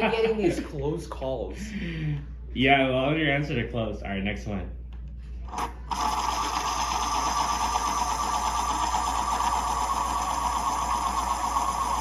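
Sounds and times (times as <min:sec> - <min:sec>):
electric pencil sharpener grinding: 0:05.5 - 0:12.0.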